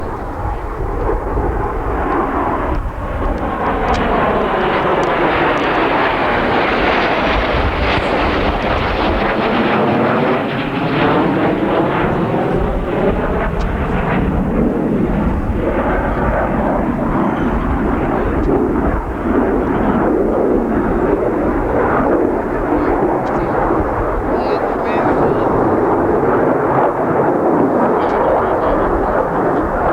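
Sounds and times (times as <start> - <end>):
fighter jet flying past: 0.0 - 29.9.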